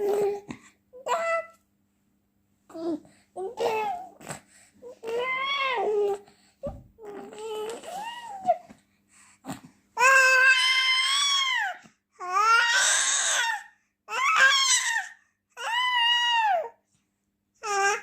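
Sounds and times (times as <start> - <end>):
baby crying: 0.0 - 1.5, 2.8 - 4.2, 4.8 - 6.2, 10.0 - 16.7.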